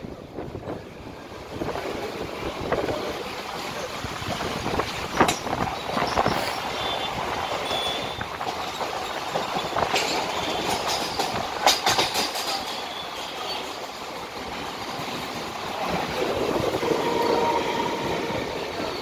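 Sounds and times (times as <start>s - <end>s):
train rushing rumble: 0.0s - 19.0s
wheels clacking over rail joints: 2.8s - 17.6s.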